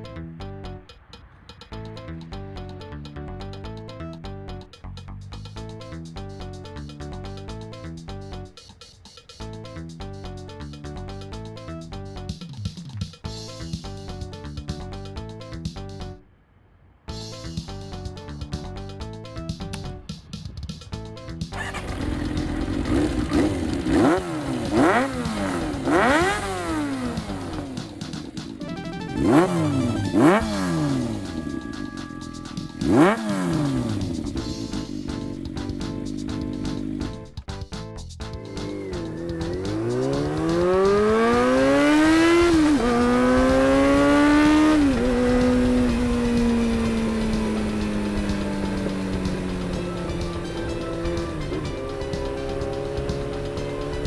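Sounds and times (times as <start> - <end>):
engine throttle blips: 21.6 - 37.3, 38.4 - 54.0.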